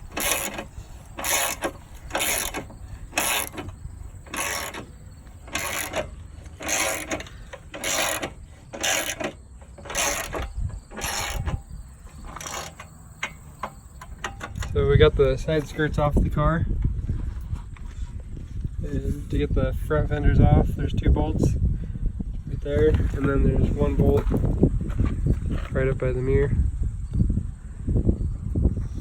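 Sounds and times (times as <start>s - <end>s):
ratchet wrench clicking: 0.0s - 11.7s, 12.3s - 14.8s.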